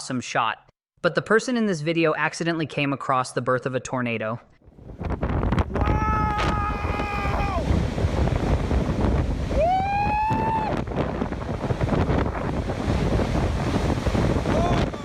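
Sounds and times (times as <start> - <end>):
wind blowing across microphone: 4.6 - 15.0.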